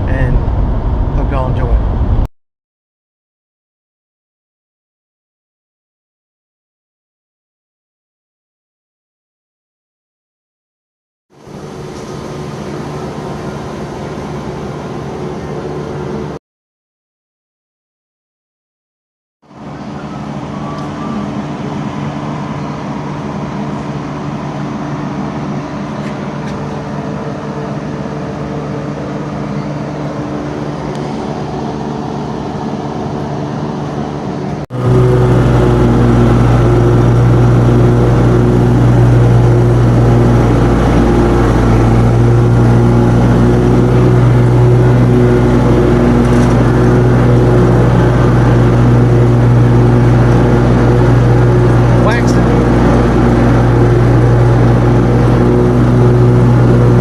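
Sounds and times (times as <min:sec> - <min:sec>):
engine running steadily: 0:00.0 - 0:02.3, 0:11.3 - 0:16.4, 0:19.5 - 0:57.0
louder engine with low hum: 0:00.0 - 0:02.3, 0:11.3 - 0:16.4, 0:19.4 - 0:57.0.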